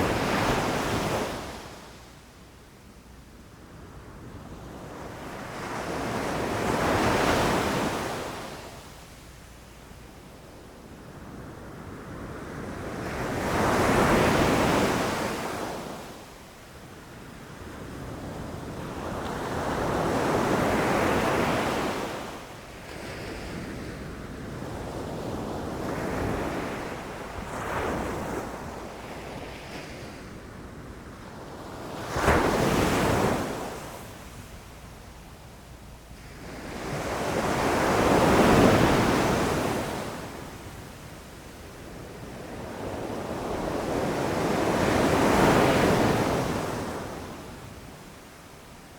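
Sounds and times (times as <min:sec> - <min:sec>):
ocean waves crashing on beach: 0:36.1 - 0:40.8.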